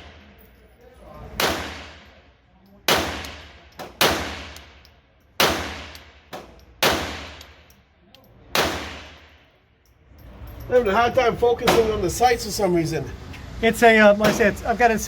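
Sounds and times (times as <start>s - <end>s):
gunshots: 1.4s - 2.2s, 2.9s - 4.8s, 5.4s - 7.5s, 8.5s - 9.3s.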